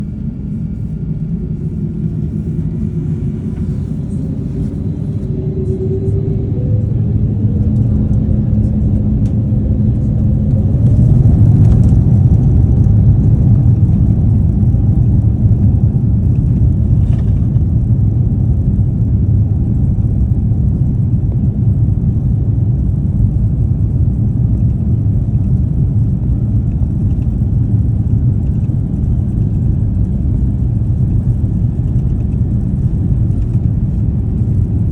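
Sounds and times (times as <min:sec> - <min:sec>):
jet engines spooling up: 0:00.3 - 0:13.4.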